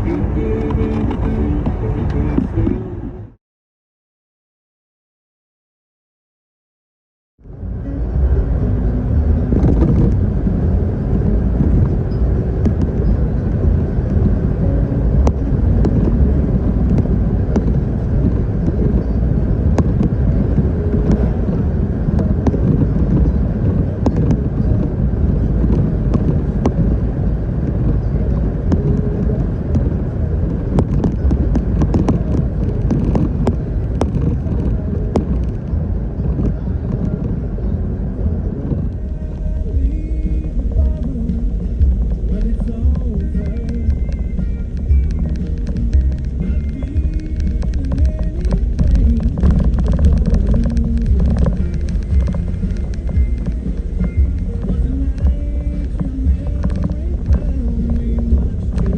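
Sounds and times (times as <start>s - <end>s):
engine and tyres rumbling: 0.0s - 3.4s, 7.4s - 58.9s
sharp clicks: 38.9s - 58.9s.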